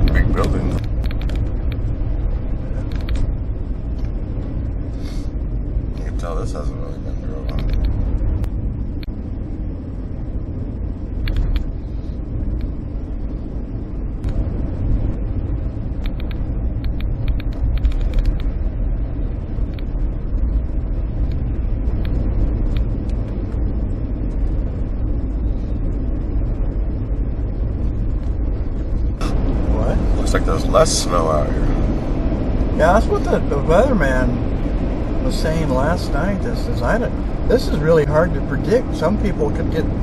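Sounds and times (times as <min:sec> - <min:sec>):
car engine rumble: 0:00.0 - 0:40.0
tyres on snowy road: 0:28.7 - 0:40.0.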